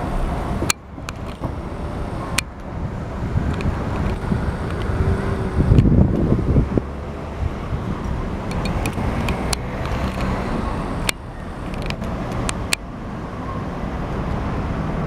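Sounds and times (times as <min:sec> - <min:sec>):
road traffic rumble: 0:00.0 - 0:15.0
sharp clicks: 0:08.0 - 0:10.4, 0:11.0 - 0:12.8.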